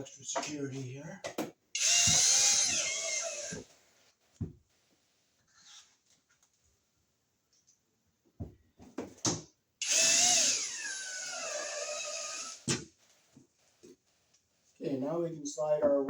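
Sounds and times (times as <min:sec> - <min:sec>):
power drill driving a screw: 0:01.8 - 0:03.7, 0:09.8 - 0:12.8.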